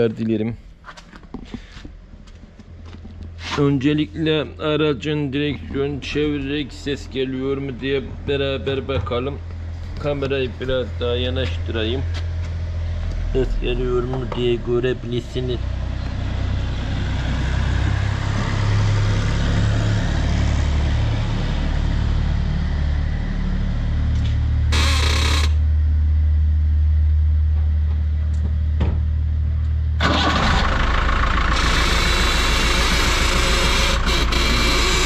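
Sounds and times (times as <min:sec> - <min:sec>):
van engine idling: 0:01.5 - 0:35.0
rough noise from front end: 0:15.9 - 0:29.2, 0:31.5 - 0:35.0.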